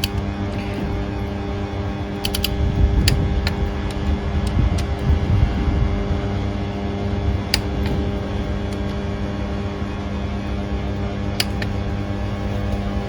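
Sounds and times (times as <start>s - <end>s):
metallic clicks of tools: 0.0s - 0.8s, 2.2s - 5.0s, 11.4s - 11.8s
steady hum: 0.0s - 13.0s.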